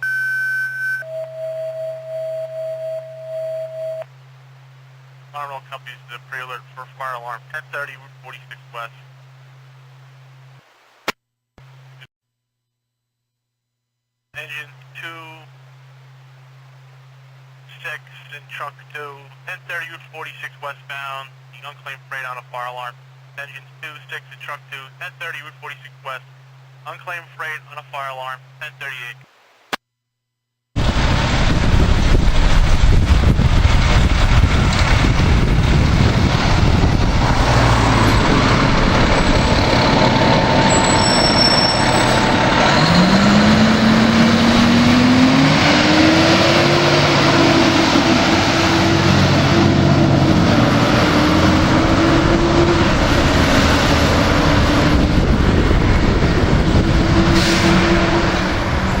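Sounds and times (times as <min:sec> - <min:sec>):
siren winding up: 0:00.0 - 0:04.1, 0:37.6 - 0:44.4
diesel engine running: 0:30.8 - 0:59.0.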